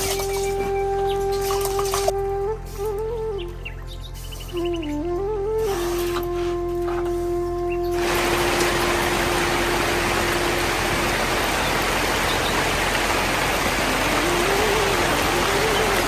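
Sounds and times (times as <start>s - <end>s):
held flute note: 0.0s - 11.2s
heavy rain hiss: 7.2s - 16.0s.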